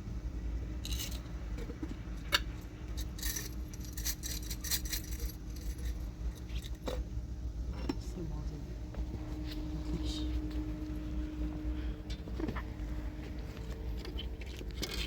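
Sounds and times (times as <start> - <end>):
small hard objects clinking: 0.8 - 1.3.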